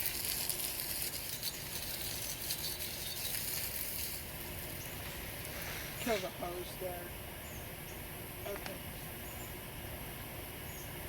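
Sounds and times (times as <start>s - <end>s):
hose water splashing into pool: 0.0s - 6.3s.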